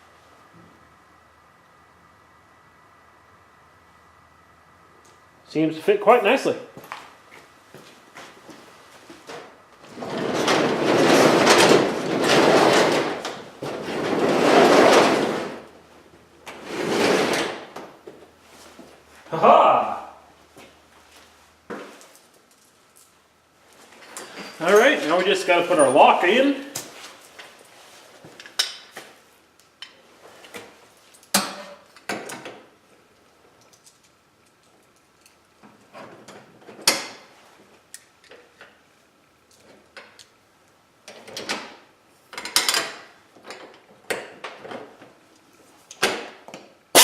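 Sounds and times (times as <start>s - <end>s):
garage door rollers rumbling: 9.8s - 15.8s, 16.5s - 17.8s.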